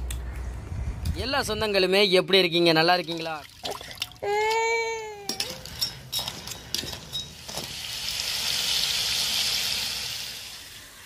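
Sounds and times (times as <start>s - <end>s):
crab frying in hot pan: 7.4s - 11.0s.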